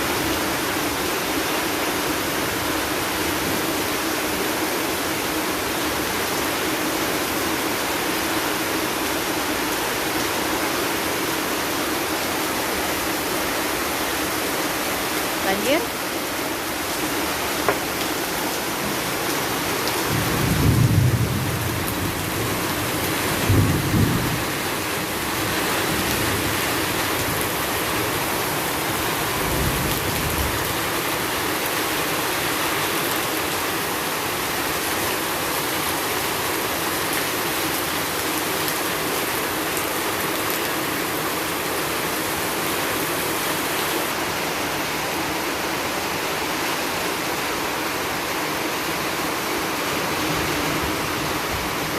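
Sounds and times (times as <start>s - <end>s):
heavy rain pouring: 0.0s - 51.9s
low thunder rumbles: 20.0s - 26.6s.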